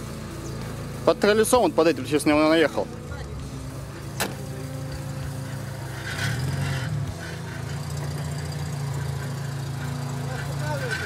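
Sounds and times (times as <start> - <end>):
car engine at low revs: 0.0 - 11.0.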